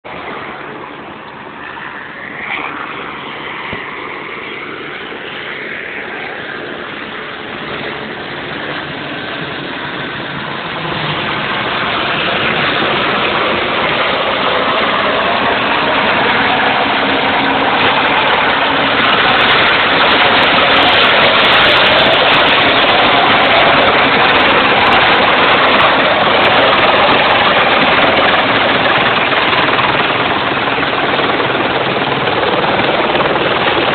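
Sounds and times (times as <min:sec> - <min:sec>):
helicopter engine and rotor: 0:00.1 - 0:33.9.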